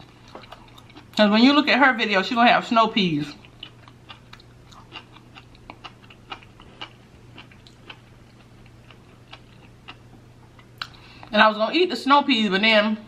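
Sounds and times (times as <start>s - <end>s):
chewing soft food: 0.0s - 1.2s, 3.3s - 11.4s.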